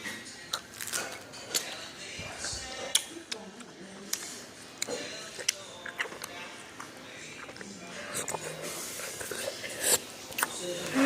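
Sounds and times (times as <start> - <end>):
wet mouth smacking while chewing: 2.9 - 3.4, 4.1 - 10.6.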